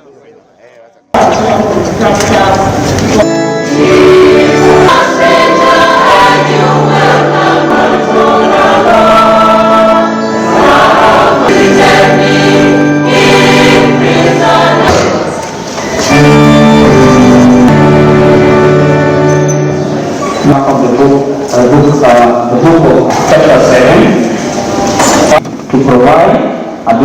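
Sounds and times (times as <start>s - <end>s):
choir singing gospel: 1.2s - 19.3s.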